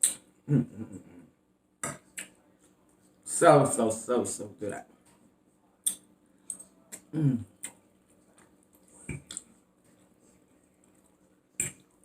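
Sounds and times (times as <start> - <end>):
chewing mouth clicks and lip smacks: 1.8 - 2.4, 5.8 - 12.0.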